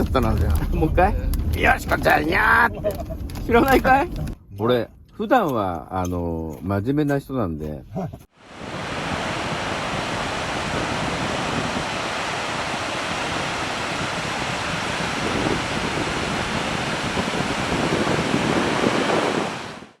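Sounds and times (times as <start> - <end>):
ocean waves breaking: 8.4 - 20.0.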